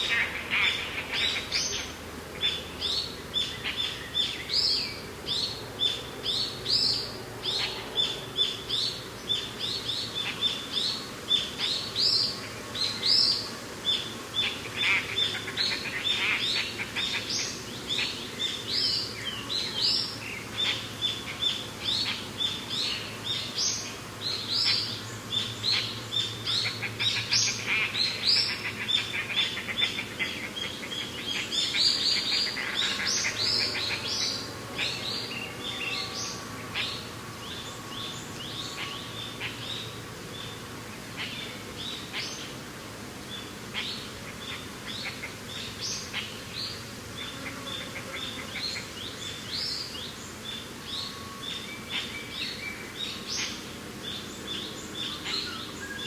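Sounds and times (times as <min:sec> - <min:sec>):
birds chirping and calling: 0:00.0 - 0:56.0.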